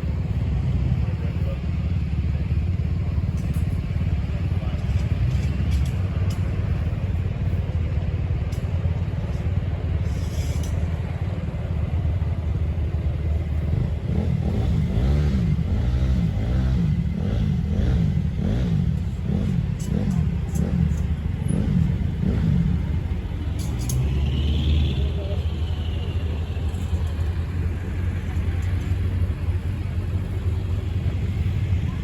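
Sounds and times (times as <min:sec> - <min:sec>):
motorcycle engine revving: 0:13.2 - 0:32.0.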